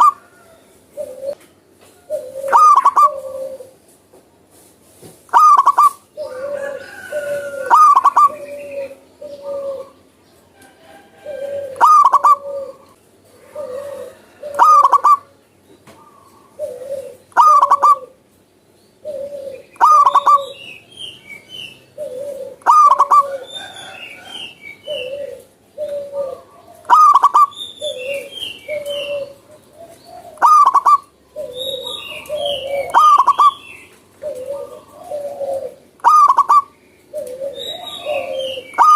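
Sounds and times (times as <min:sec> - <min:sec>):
dove cooing: 0:00.0 - 0:01.4, 0:02.0 - 0:03.8, 0:05.3 - 0:18.2, 0:19.0 - 0:38.9
small bird chirping: 0:18.9 - 0:34.9.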